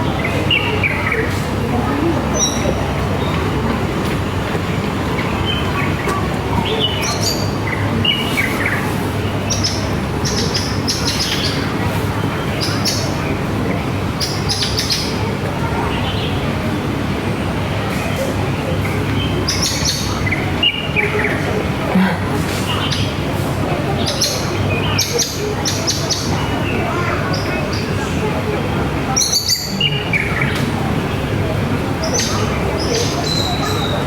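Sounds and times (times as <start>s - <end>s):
low background noise: 0.0s - 34.0s
small birds chirping: 0.0s - 34.0s.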